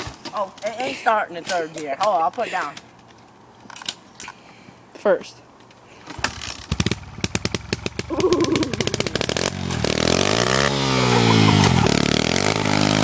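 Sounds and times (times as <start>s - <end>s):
pit bike engine starting and revving: 6.1s - 13.0s.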